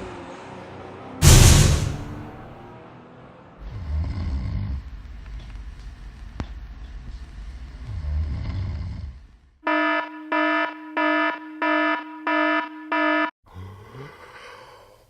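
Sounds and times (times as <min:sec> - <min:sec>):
low snoring: 0:03.6 - 0:04.9, 0:07.8 - 0:09.3
alarm clock beeping: 0:09.6 - 0:13.4.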